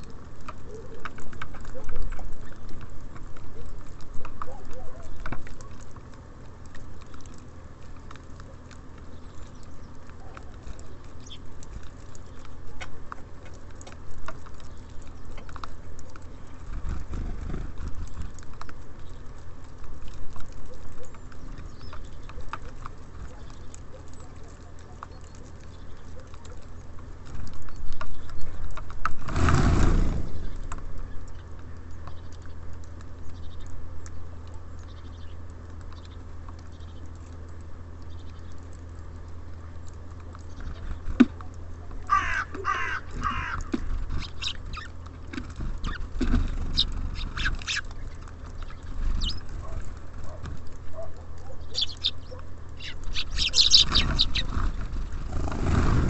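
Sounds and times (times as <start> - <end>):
distant traffic hum: 0.0 - 56.0
small birds calling: 0.0 - 56.0.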